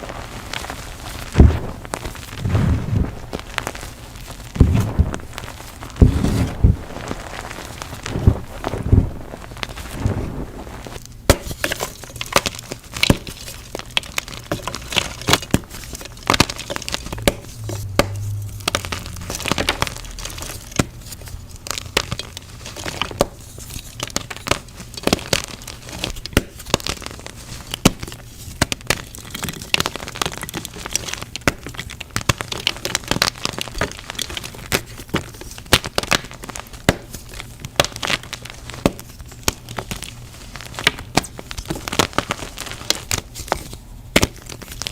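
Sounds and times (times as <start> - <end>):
chalk crushing and crunching: 0.0 - 31.4.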